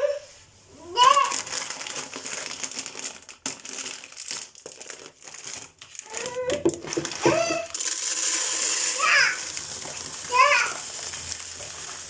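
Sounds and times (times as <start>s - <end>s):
small child's voice: 0.8s - 1.5s, 6.0s - 7.7s, 8.9s - 9.4s, 10.2s - 10.9s
packaging crinkling: 1.0s - 12.0s.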